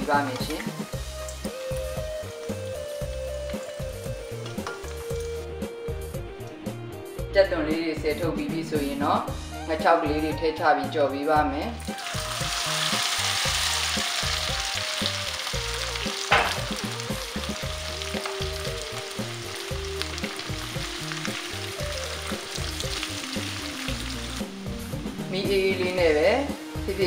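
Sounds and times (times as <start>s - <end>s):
fish sizzling in hot oil: 0.0s - 6.2s, 11.8s - 27.0s
spatula stirring: 0.4s - 5.6s
sharp knock: 16.3s - 16.7s.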